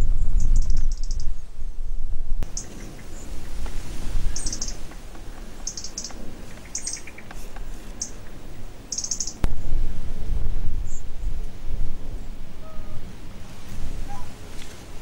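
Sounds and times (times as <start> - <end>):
songbird chirping: 2.4 - 9.4.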